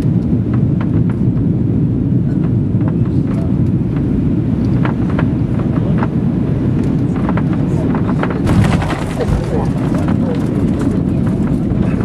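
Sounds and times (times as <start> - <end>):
airliner cabin roar: 0.0 - 12.0
faint clicks and rattles: 8.2 - 12.0.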